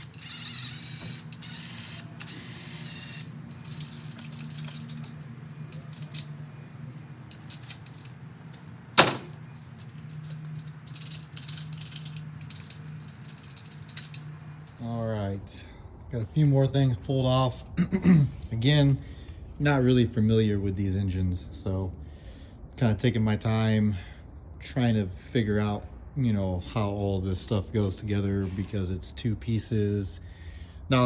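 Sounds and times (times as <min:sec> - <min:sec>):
power tool whirring: 0:00.0 - 0:06.3
metal clicks and clinks: 0:00.0 - 0:06.5, 0:07.3 - 0:14.9
steady low hum: 0:00.0 - 0:31.0.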